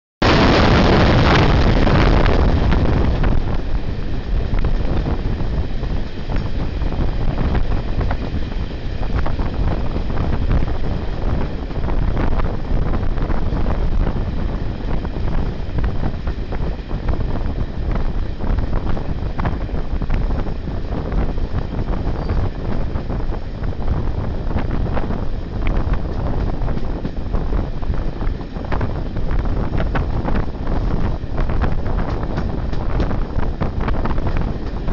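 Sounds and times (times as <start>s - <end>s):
train running noise: 0.2s - 34.9s
wind rushing over microphone: 0.2s - 34.9s
wheels clicking on track: 29.3s - 34.9s.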